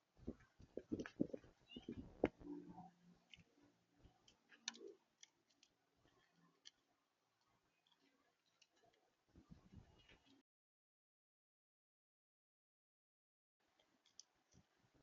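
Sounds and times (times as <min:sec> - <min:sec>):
faint clicks: 0:00.2 - 0:10.4, 0:13.7 - 0:14.7.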